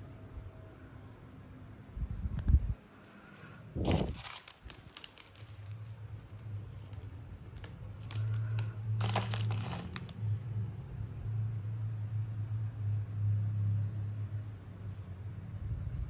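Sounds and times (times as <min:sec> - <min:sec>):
wrapping paper crinkling: 0:03.8 - 0:10.2.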